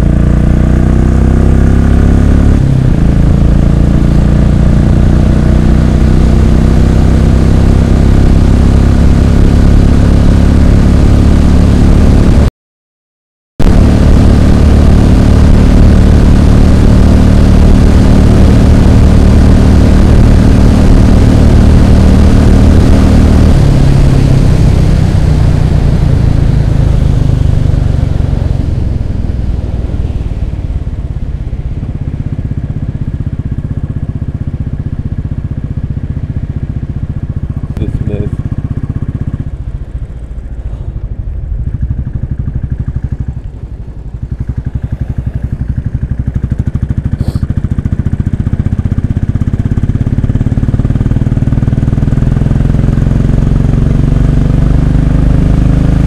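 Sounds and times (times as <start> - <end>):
motorcycle engine running: 0.0 - 12.5, 13.6 - 56.0.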